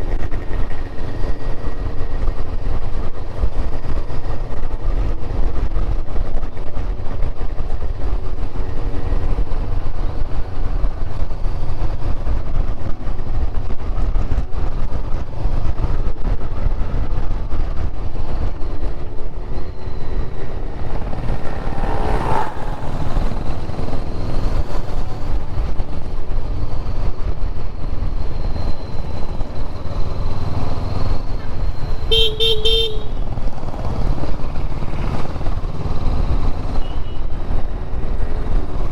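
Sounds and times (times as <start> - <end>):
motorcycle engine rumble: 0.0 - 38.9
horn toot: 32.1 - 33.2.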